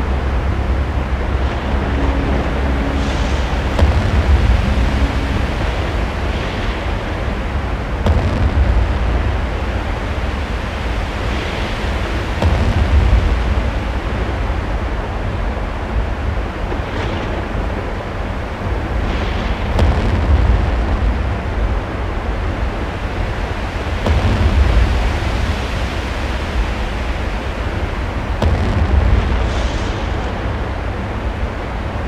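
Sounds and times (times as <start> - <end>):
loud deep rumbling: 0.0 - 32.0.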